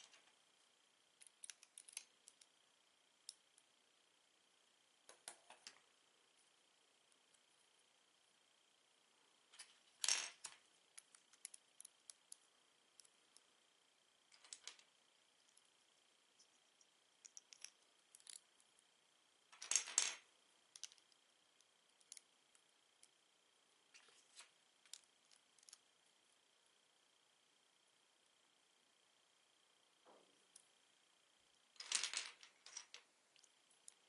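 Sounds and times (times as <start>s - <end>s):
loose pieces rattling: 19.6s - 20.2s, 31.8s - 33.0s.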